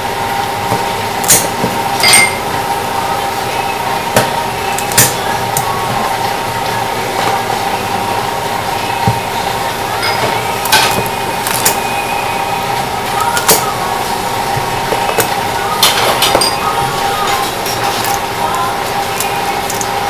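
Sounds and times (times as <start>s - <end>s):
steady hum: 0.0s - 20.0s
hard objects knocking and clinking: 0.7s - 2.6s, 14.8s - 20.0s.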